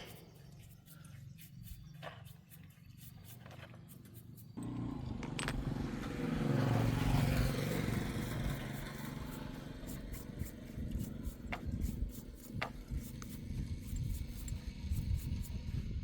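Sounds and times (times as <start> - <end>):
engine running: 4.6 - 16.0.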